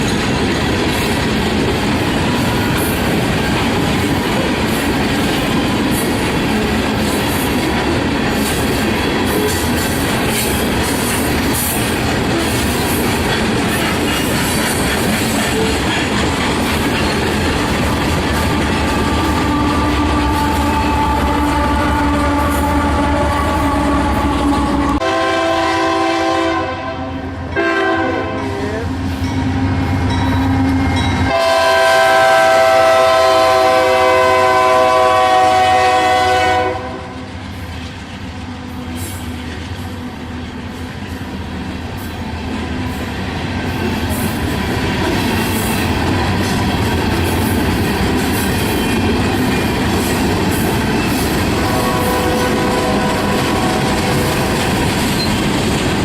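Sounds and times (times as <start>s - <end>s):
freight train rumbling past: 0.0s - 56.0s
train air horn blasts: 18.4s - 28.9s, 31.3s - 37.3s, 51.5s - 54.6s.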